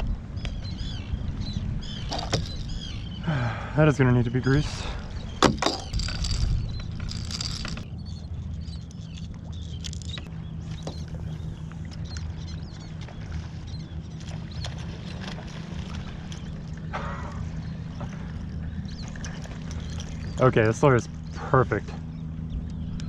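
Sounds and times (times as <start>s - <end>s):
steady low hum: 0.0s - 23.0s
gear clicks and knocks: 2.1s - 2.8s, 5.4s - 7.9s, 8.6s - 11.0s.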